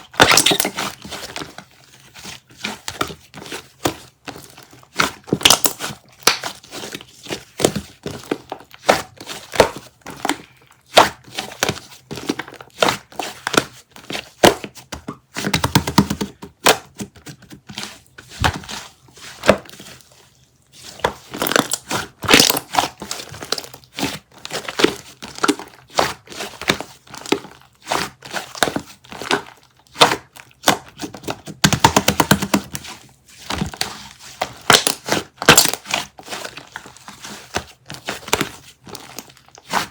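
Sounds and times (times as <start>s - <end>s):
papery plastic crinkling: 0.1s - 13.5s.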